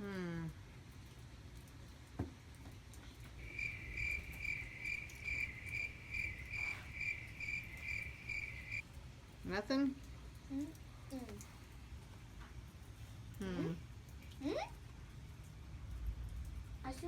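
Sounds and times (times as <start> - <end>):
small animal chirping: 3.4 - 8.8.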